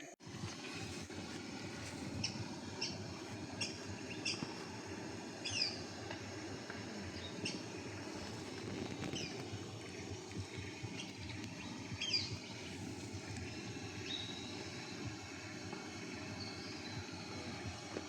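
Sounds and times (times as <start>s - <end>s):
low outdoor background rumble: 0.0s - 18.0s
bird chirping: 2.1s - 4.5s, 5.4s - 5.8s, 7.1s - 7.7s, 9.0s - 15.1s.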